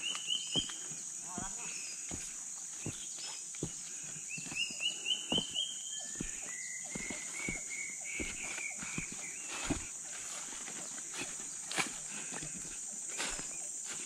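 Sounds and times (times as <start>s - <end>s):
bird singing: 0.0s - 14.0s
high-pitched insect drone: 0.0s - 14.0s
footsteps thudding: 0.4s - 0.8s, 1.4s - 10.6s.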